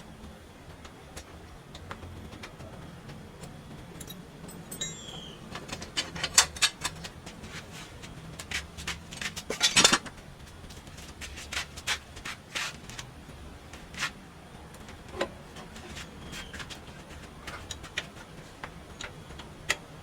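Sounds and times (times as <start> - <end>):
metal tools clinking: 4.0 - 7.2, 9.5 - 10.1.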